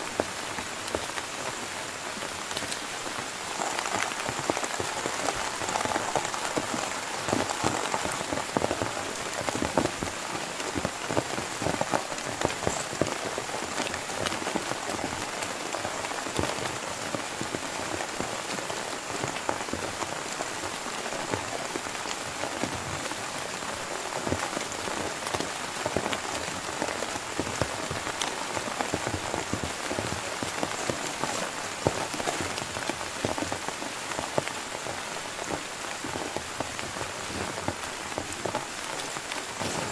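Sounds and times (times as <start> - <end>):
heavy rain falling: 0.0 - 39.9
raindrops striking a surface: 0.0 - 39.9.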